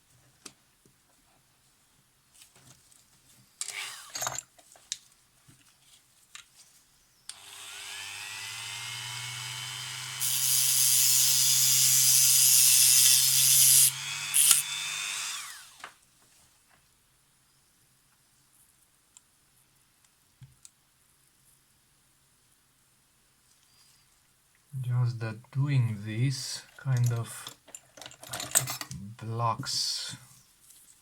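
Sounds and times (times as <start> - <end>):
rotary tool whining: 3.6 - 4.4, 7.3 - 15.9
handling clatter: 27.0 - 29.0.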